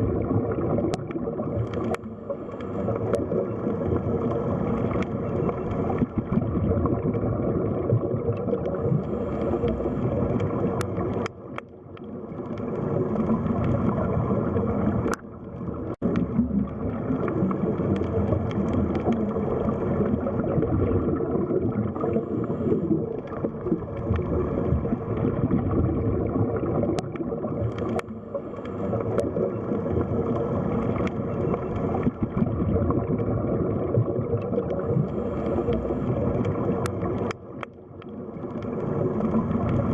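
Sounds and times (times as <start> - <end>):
underwater water rushing: 0.0 - 39.9
faint clicks: 0.8 - 6.4, 8.3 - 20.2, 26.8 - 32.5, 34.4 - 39.9.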